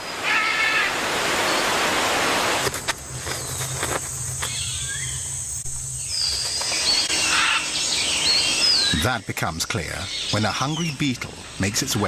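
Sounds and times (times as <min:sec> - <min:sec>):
high insect drone: 0:02.6 - 0:12.0.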